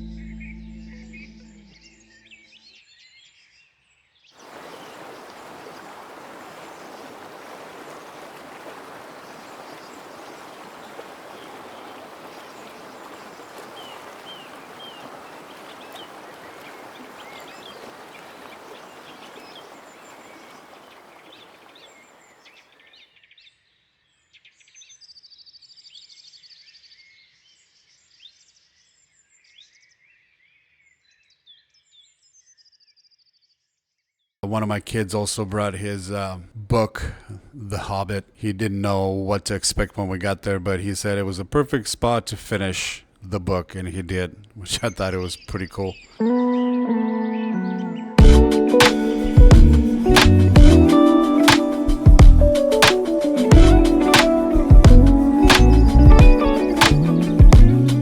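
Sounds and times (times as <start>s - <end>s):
songbirds chirping: 0.0s - 23.0s, 34.4s - 58.0s
waterfall rushing: 4.4s - 22.1s, 48.2s - 58.0s.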